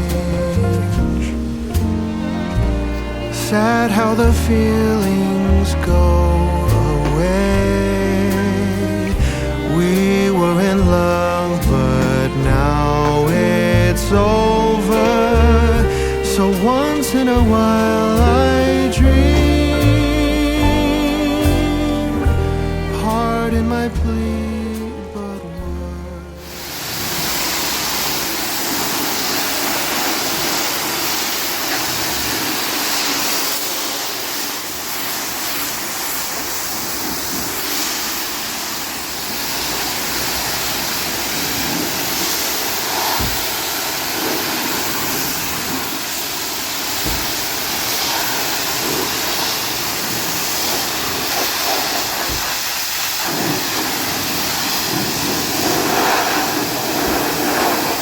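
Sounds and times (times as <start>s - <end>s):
pressure washer spray hiss: 0.0s - 25.5s, 26.3s - 58.0s
low thumps: 0.0s - 26.3s.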